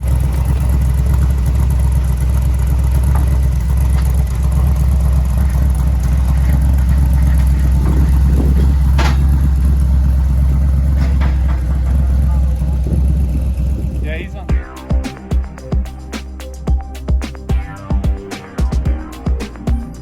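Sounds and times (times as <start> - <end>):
truck engine rumbling: 0.0 - 20.0
sharp rattles or knocks: 2.9 - 13.7.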